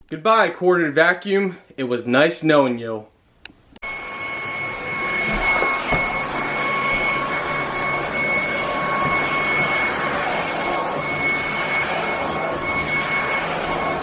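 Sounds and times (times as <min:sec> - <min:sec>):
vacuum cleaner running: 0:03.8 - 0:14.0.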